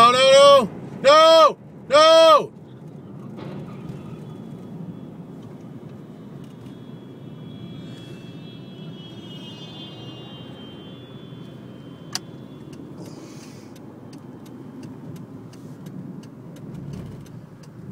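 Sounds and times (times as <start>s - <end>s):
car road and engine noise: 0.0s - 17.9s
faint high tones: 3.3s - 13.5s.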